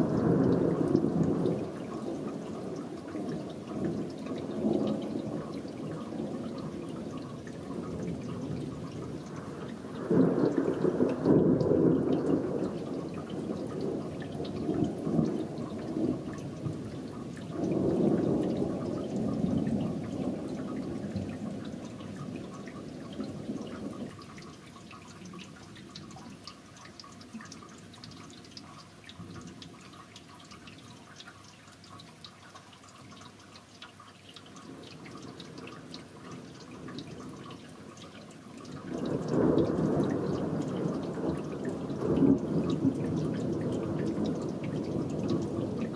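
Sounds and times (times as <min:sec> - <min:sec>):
rain dripping and pattering: 0:00.0 - 0:45.9
rolling thunder: 0:02.8 - 0:24.3, 0:38.8 - 0:45.9.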